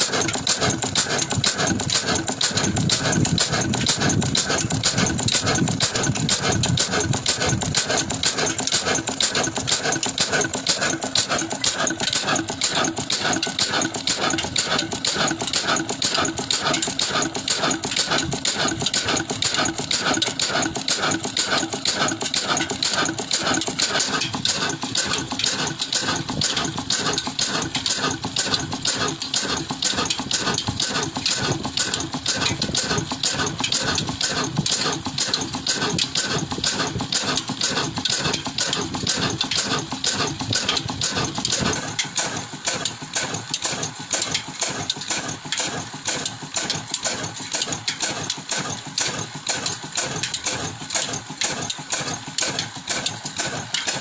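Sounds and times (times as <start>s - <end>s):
antique engine running: 0.0s - 54.0s.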